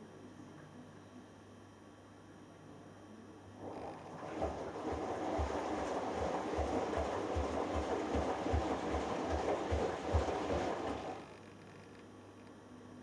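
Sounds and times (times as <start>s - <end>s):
washing machine drum sloshing: 3.6s - 11.3s.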